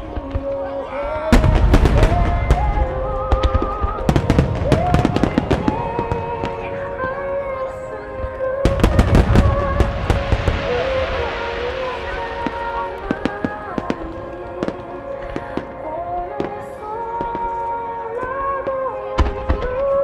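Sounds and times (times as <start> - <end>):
fireworks cracking and booming: 0.0 - 7.5, 8.6 - 17.6
music with singing: 0.0 - 20.0.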